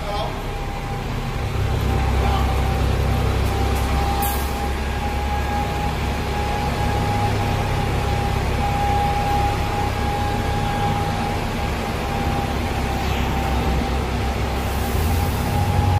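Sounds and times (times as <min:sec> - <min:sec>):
bus engine running: 0:00.0 - 0:15.9
road noise: 0:00.0 - 0:15.9.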